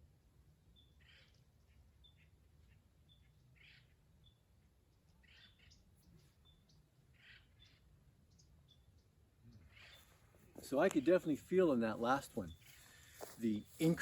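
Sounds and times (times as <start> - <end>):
soft hissy puffs: 10.1 - 14.0.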